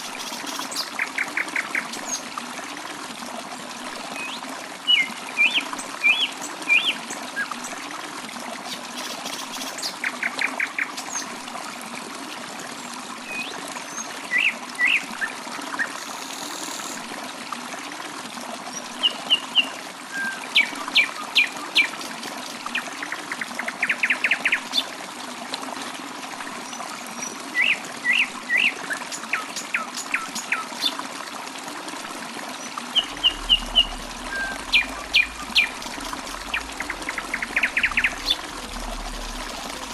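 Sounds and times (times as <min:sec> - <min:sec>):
running water trickling: 0:00.0 - 0:39.9
birds chirping and trilling: 0:32.9 - 0:39.9.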